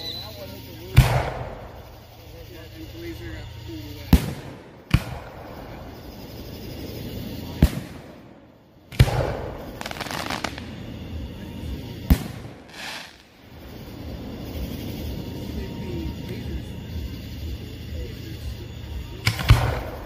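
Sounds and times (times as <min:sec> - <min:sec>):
fireworks booming: 0:00.0 - 0:20.0
fireworks crackling: 0:00.0 - 0:20.0.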